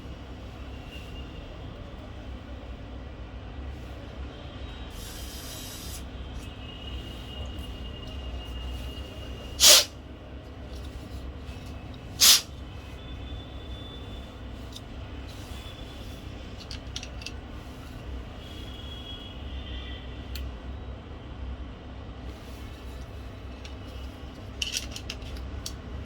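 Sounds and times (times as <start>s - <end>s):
loud hissing bursts: 4.9s - 6.0s, 9.6s - 9.9s, 12.2s - 12.5s.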